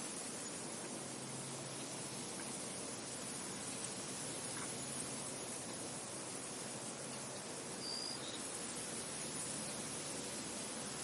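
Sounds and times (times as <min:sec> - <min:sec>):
wind blowing through a field: 0:00.0 - 0:11.0.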